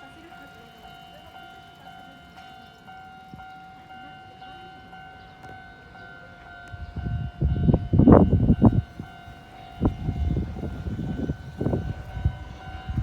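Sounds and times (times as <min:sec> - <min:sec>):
electric train high whine: 0:00.0 - 0:13.0
train rumbling thumps: 0:07.0 - 0:13.0.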